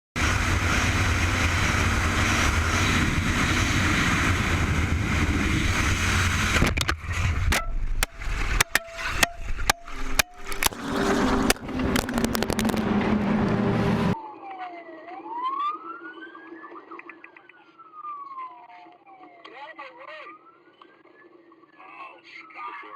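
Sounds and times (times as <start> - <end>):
loud steady noise: 0.2 - 14.2
emergency vehicle siren wailing: 0.2 - 21.0.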